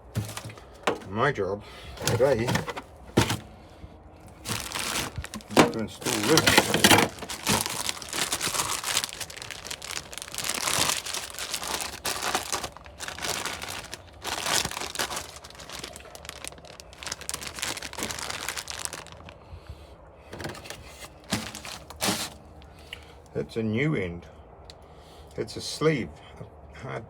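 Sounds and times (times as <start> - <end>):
plastic packaging crinkling: 0.0 - 1.1, 2.0 - 3.5, 4.2 - 19.4, 20.3 - 22.7.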